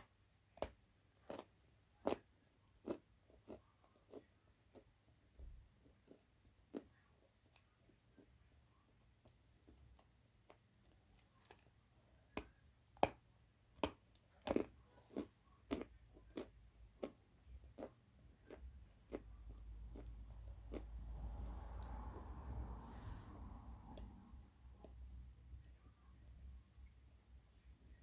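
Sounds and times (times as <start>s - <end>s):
clay being crunched and chewed: 9.2s - 22.0s.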